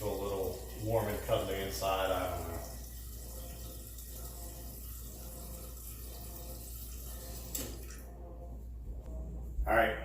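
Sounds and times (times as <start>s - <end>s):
water running from a tap into a pot: 0.0s - 8.0s.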